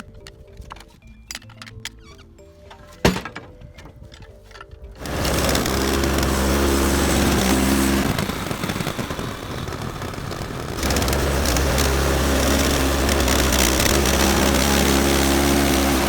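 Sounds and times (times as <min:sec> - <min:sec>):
faint music: 0:00.0 - 0:05.0
bandsaw mill engine running: 0:05.0 - 0:16.0.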